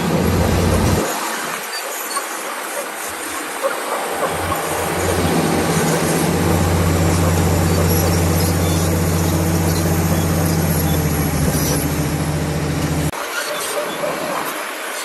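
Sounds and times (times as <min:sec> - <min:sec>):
bulldozer diesel engine droning: 0:00.0 - 0:01.8, 0:03.0 - 0:13.2
machinery noise: 0:00.0 - 0:15.0.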